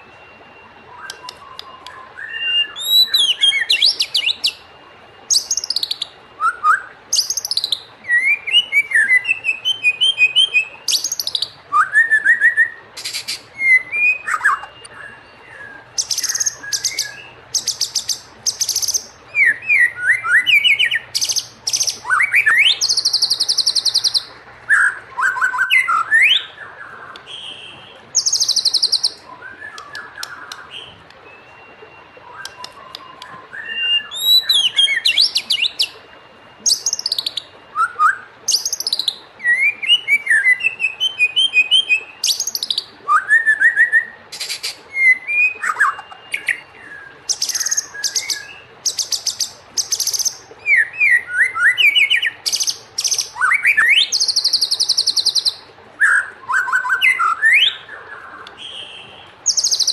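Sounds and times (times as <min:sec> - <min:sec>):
bird singing whistled notes: 0:00.0 - 0:59.9
high rattling bird trills: 0:05.3 - 0:06.2, 0:07.1 - 0:10.3, 0:16.0 - 0:26.5, 0:27.5 - 0:29.2, 0:36.6 - 0:37.5, 0:38.5 - 0:39.2.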